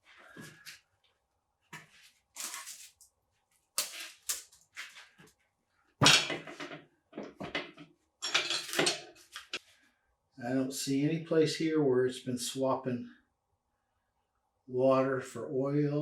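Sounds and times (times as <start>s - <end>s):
metal engine parts clattering: 6.0s - 9.6s.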